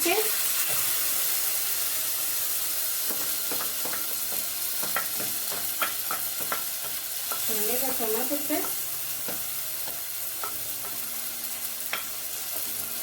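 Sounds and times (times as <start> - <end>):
onions sizzling in oil: 0.0 - 13.0
utensil knocking against pan: 3.1 - 7.6.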